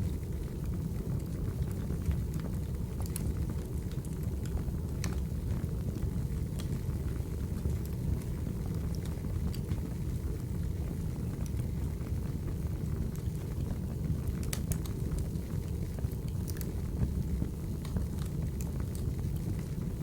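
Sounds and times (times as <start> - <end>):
firewood crackles and pops: 0.0 - 20.0
low rumble of flames: 0.0 - 20.0.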